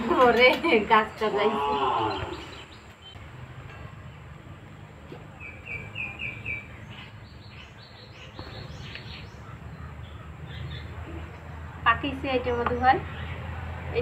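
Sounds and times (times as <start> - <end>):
small birds chirping: 0.4 - 3.3, 5.2 - 14.0.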